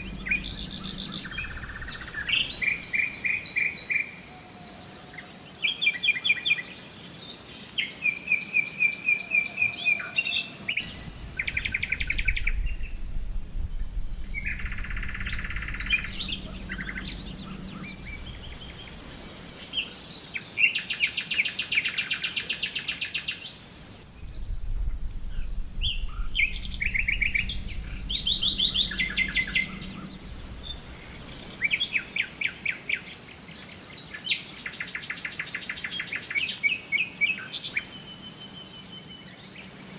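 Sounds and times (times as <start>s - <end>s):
low rumble: 0.0s - 3.1s, 10.8s - 19.9s, 24.0s - 32.4s
faint steady hum: 0.0s - 5.6s, 10.7s - 22.1s, 23.4s - 39.9s
songbirds singing and chirping: 0.0s - 39.9s.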